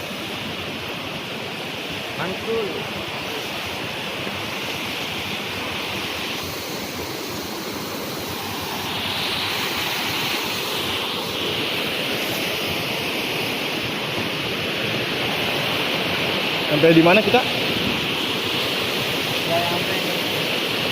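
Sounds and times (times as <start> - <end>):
waterfall roaring: 0.0 - 20.9.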